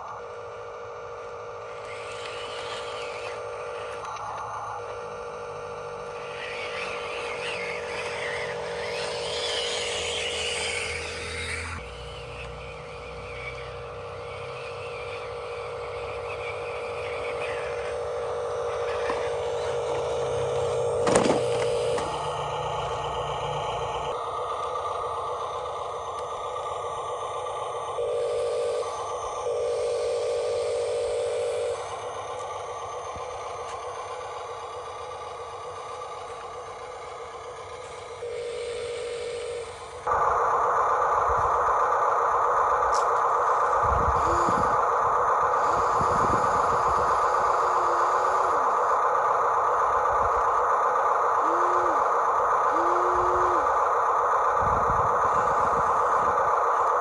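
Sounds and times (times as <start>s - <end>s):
electric motors whining: 0.0s - 57.0s
wavering high-pitched sound: 5.8s - 24.2s, 45.6s - 49.0s, 51.4s - 53.8s.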